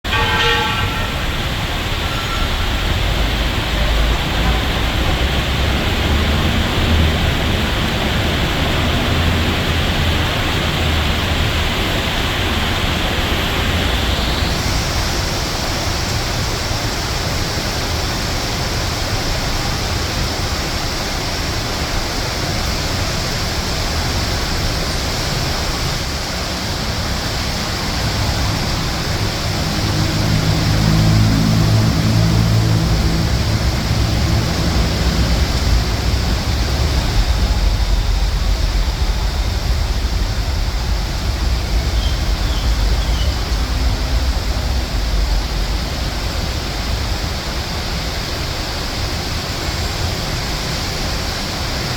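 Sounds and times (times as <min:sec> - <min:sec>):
heavy rain falling: 0:00.0 - 0:51.9
low rumble of traffic: 0:00.0 - 0:51.9.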